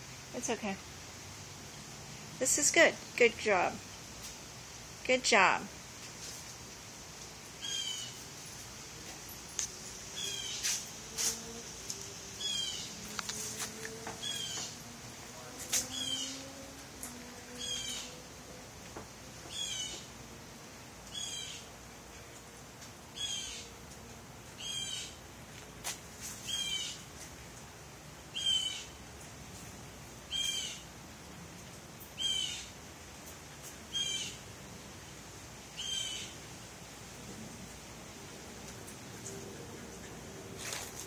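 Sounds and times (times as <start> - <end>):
high falling bird call: 14.2 - 14.8.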